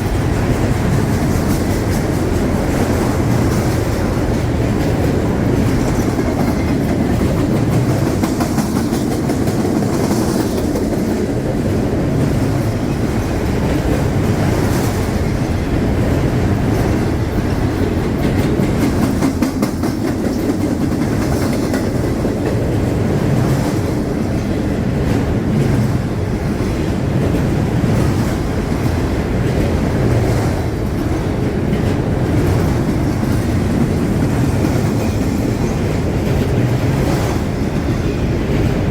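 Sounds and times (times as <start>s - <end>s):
freight train rolling past: 0.0s - 38.9s
wheels clacking over rails: 0.0s - 38.9s.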